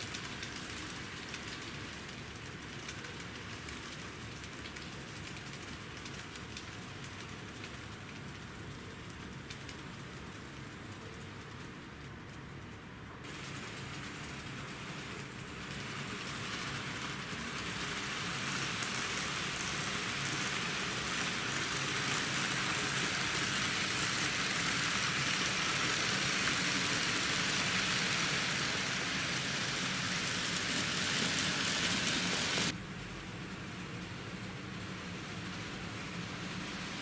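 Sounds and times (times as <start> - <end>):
train running hiss: 13.2 - 37.0.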